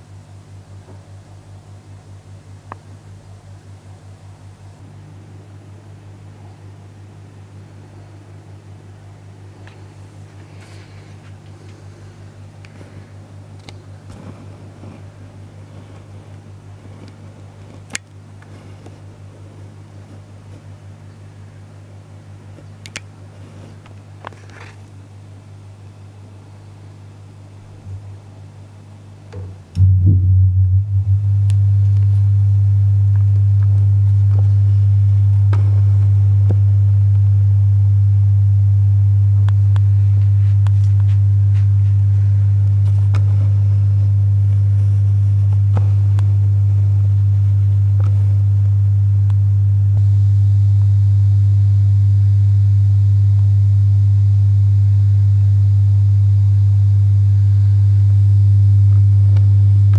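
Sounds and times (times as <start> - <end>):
low mains hum: 0.0 - 59.9
faint high buzz: 24.4 - 59.9.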